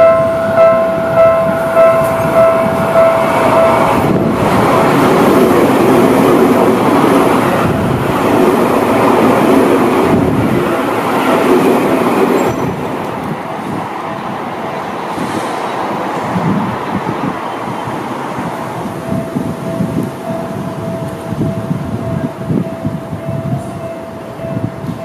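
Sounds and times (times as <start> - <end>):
level crossing warning bell: 0.0 - 6.8, 18.6 - 25.0
electric train passing: 0.0 - 25.0.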